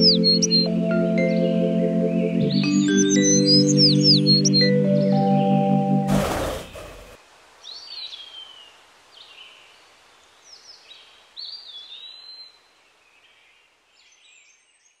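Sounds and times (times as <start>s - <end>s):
birds whistling: 0.0s - 0.7s, 3.0s - 7.2s
soft outdoor hiss: 6.1s - 15.0s.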